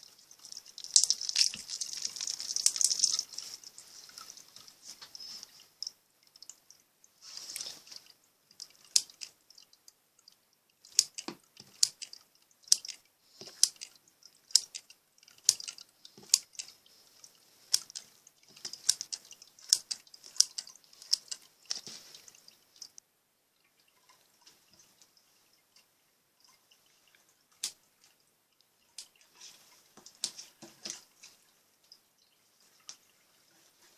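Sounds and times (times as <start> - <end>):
slime squishing: 0.0 - 4.8.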